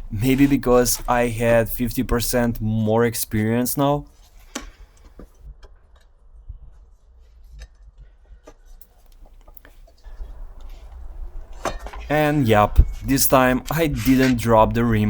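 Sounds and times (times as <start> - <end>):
steady low hum: 0.0 - 5.0, 9.2 - 15.0.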